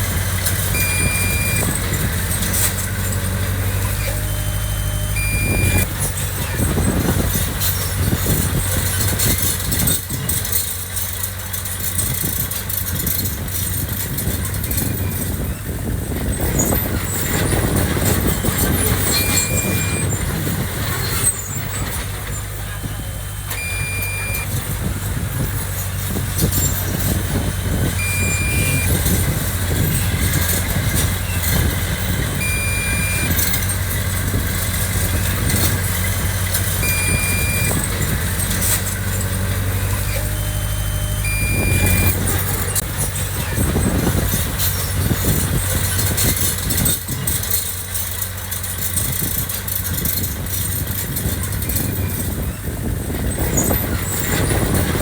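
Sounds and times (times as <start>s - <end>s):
diesel engine running: 0.0s - 55.0s
machinery clanking: 0.0s - 55.0s
reversing alarm beep: 0.8s - 1.8s, 3.9s - 5.9s, 18.6s - 20.2s, 23.4s - 24.6s, 28.0s - 29.2s, 32.4s - 33.7s, 36.8s - 37.9s, 40.0s - 42.8s.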